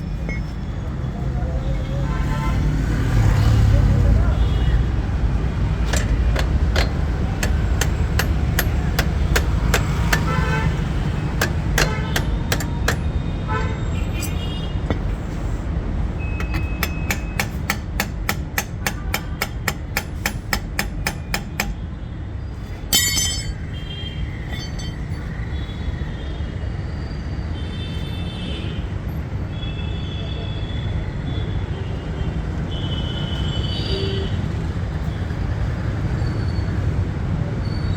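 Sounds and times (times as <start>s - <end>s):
engine and road rumble: 0.0s - 26.2s
vehicle horns honking: 7.6s - 15.1s.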